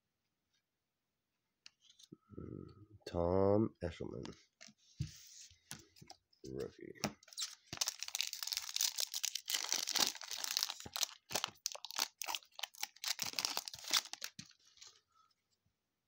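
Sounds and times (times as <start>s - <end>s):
plastic wrapper crinkling: 7.3s - 15.0s.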